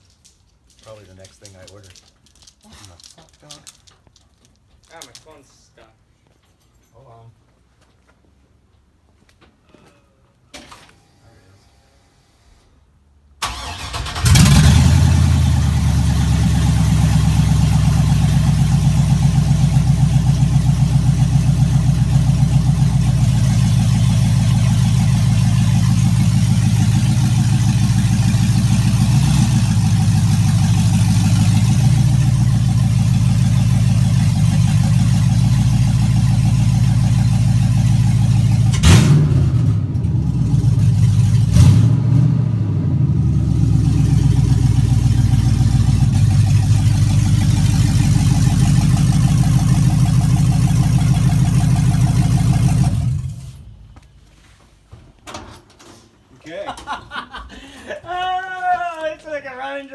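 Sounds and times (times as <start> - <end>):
engine cranking: 13.4 - 41.9
engine idling loudly: 14.3 - 38.9, 43.4 - 53.6.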